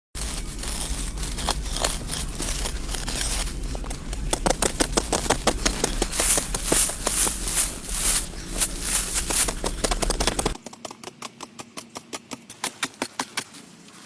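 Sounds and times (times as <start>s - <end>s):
scraping rustling noise: 0.2s - 10.6s.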